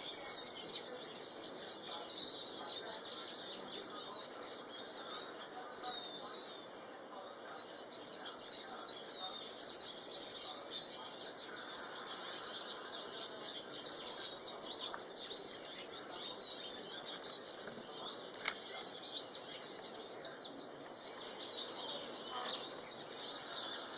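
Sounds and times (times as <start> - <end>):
goldfinches twittering: 7.5 - 23.9.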